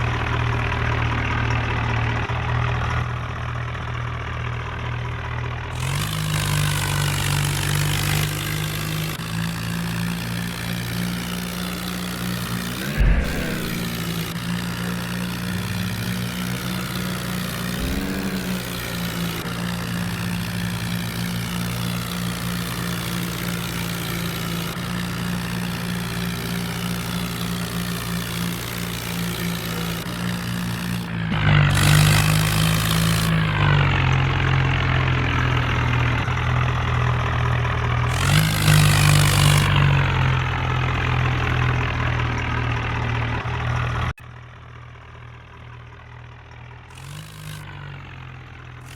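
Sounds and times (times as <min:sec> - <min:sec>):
tractor diesel engine revving: 0:00.0 - 0:48.9.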